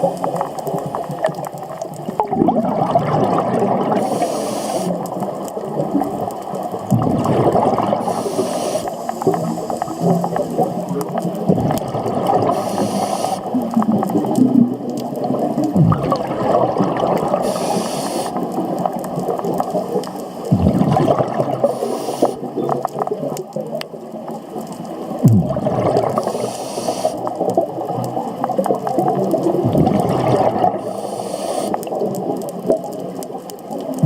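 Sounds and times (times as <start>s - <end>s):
exhaled bubbles rumbling: 0.0s - 34.0s
underwater water noise: 0.0s - 34.0s
regulator inhale hiss: 4.0s - 5.1s, 8.0s - 10.6s, 12.5s - 13.6s, 17.4s - 18.5s, 21.6s - 22.5s, 26.2s - 27.3s, 30.8s - 31.9s.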